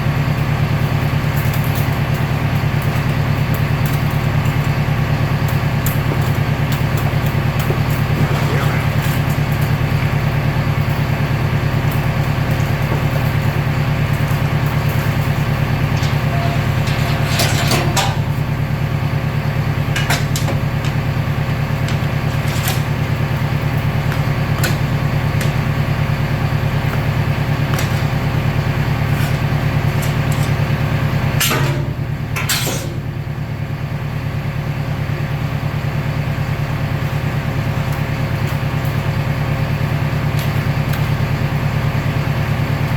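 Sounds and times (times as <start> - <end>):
baler humming: 5.8 - 30.4
metallic clanks and knocks: 14.1 - 18.9, 19.8 - 23.1, 31.4 - 33.0.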